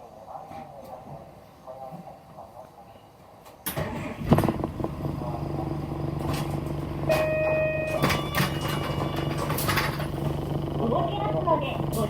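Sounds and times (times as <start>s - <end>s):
bus engine humming: 3.8s - 12.0s
steady beep: 7.1s - 9.6s.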